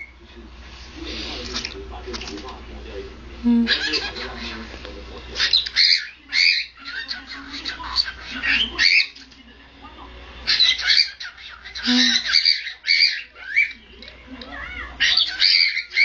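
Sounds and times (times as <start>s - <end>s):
parrots squawking: 3.6s - 9.3s, 10.4s - 13.8s, 14.4s - 16.0s.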